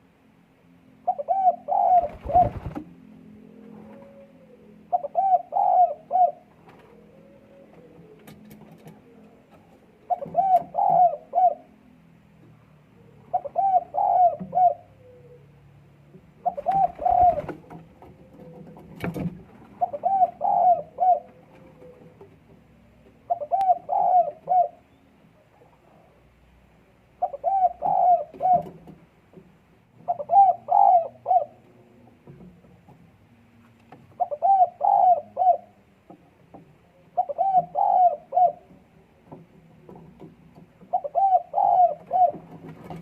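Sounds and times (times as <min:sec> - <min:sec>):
dove cooing: 0:01.0 - 0:12.0, 0:12.8 - 0:25.0, 0:27.2 - 0:29.0, 0:30.0 - 0:32.1, 0:34.0 - 0:35.9, 0:36.9 - 0:39.2, 0:40.8 - 0:43.0.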